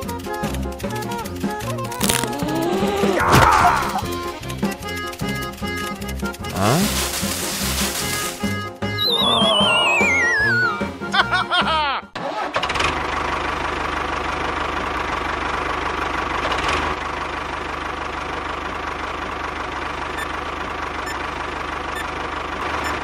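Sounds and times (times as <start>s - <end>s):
small motor running: 0.0s - 8.5s
background music: 0.0s - 12.2s.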